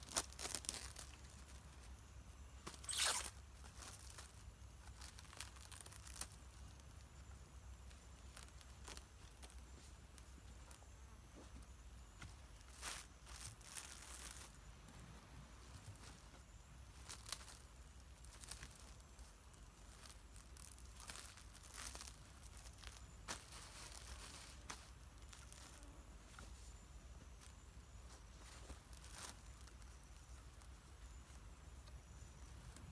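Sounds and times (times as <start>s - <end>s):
faint rustling and crinkling: 0.0s - 32.9s
sharp crackles: 2.6s - 6.6s.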